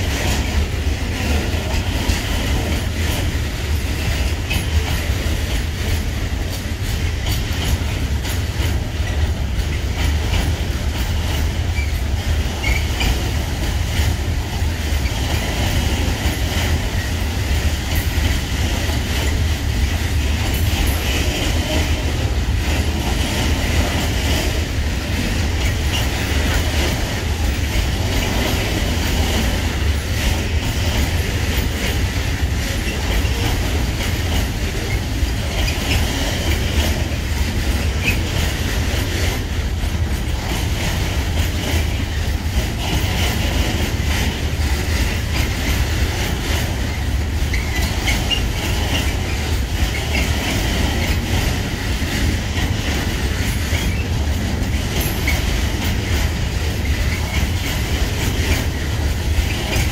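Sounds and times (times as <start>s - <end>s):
freight wagons rumbling: 0.0s - 59.9s
wheels clicking over rail joints: 0.0s - 59.9s
high wheel squeal: 12.6s - 13.1s.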